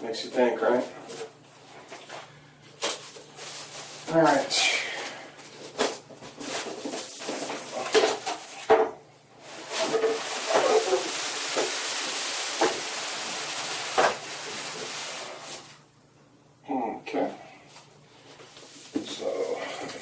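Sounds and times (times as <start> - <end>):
box sliding rustling hiss: 9.4 - 15.8.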